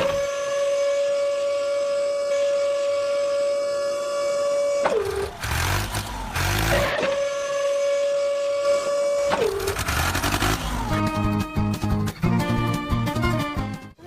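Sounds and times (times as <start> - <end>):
toy car electric motor whining: 4.2 - 11.3
rough scraping: 4.9 - 7.3.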